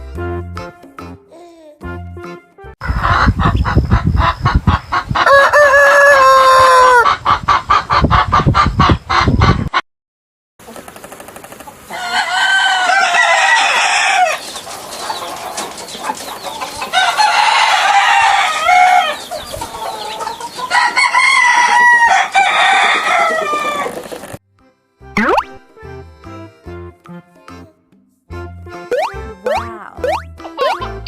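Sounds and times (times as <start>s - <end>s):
noisy farmyard background: 2.8s - 9.8s, 10.6s - 24.4s
rooster crowing: 5.2s - 7.0s, 11.9s - 14.4s, 16.9s - 19.2s, 19.8s - 24.2s.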